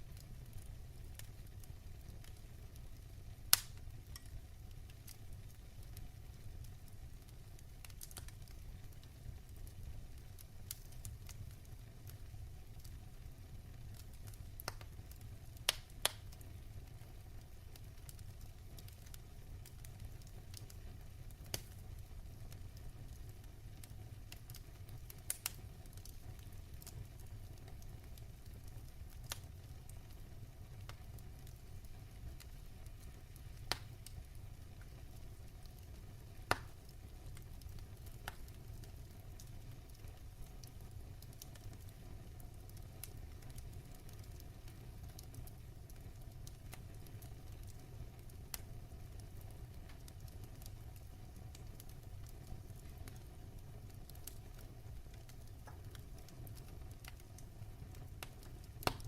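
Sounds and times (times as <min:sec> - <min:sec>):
wood fire crackling: 0:00.0 - 0:59.0
sharp pops of fire: 0:00.1 - 0:12.9, 0:13.9 - 0:42.1, 0:42.7 - 0:59.0.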